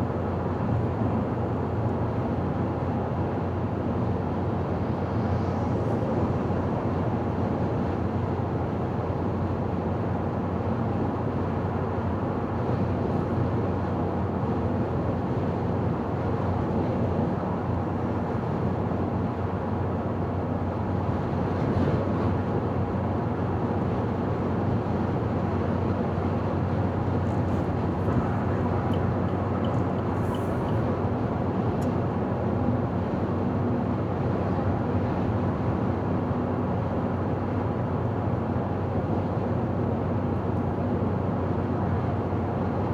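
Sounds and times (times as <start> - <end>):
car driving on highway: 22.4 - 42.8
faint ticks: 27.3 - 30.9.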